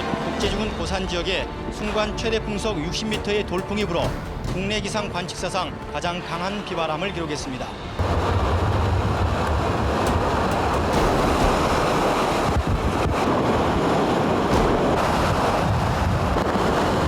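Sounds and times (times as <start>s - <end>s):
rough water: 0.0s - 17.0s
strong wind buffeting microphone: 7.8s - 17.0s.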